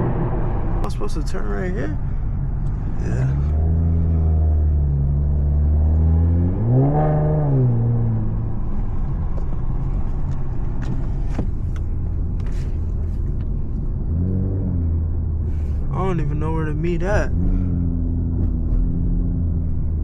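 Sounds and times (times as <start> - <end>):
car engine and exhaust rumble: 0.0 - 20.0.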